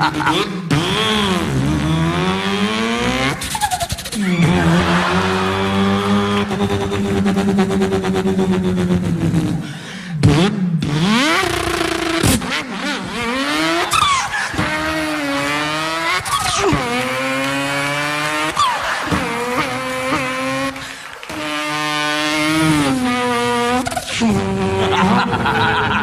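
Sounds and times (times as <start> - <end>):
vocal swooping squeals: 0.0 - 8.8, 12.7 - 17.4, 18.3 - 21.4
man imitating racing car engine: 0.0 - 26.0.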